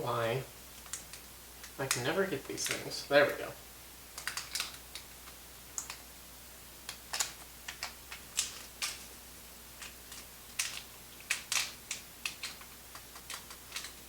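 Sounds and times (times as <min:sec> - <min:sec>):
packet crackling: 0:04.1 - 0:06.0, 0:06.9 - 0:09.2, 0:09.8 - 0:14.0.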